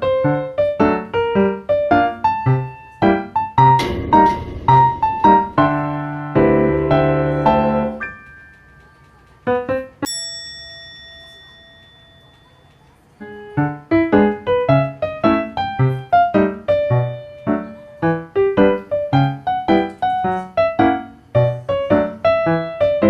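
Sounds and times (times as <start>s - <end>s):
piano music: 0.0s - 10.1s, 13.2s - 23.0s
bright bell-like note: 10.0s - 13.0s.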